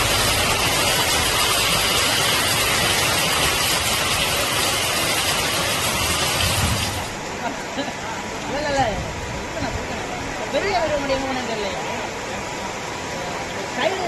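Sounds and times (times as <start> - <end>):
water gushing from downpipe: 0.0 - 7.2
heavy rain pouring: 0.0 - 14.0.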